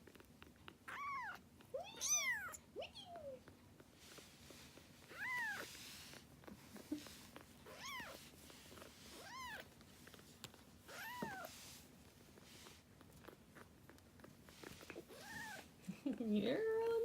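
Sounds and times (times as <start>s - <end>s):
kitten meowing: 0.9s - 3.4s, 5.1s - 5.7s, 7.6s - 8.2s, 9.2s - 9.7s, 10.9s - 11.5s, 15.1s - 15.7s.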